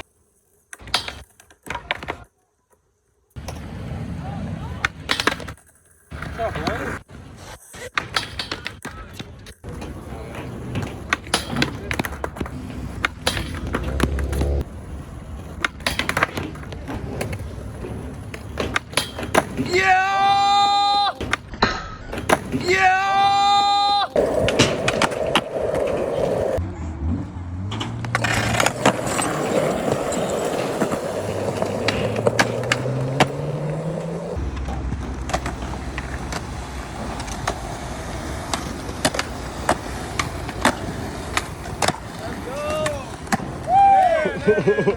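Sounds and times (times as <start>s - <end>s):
skateboard clacking on ground: 0.0s - 26.6s, 27.7s - 44.9s
skateboard wheels rolling on concrete: 0.0s - 44.9s.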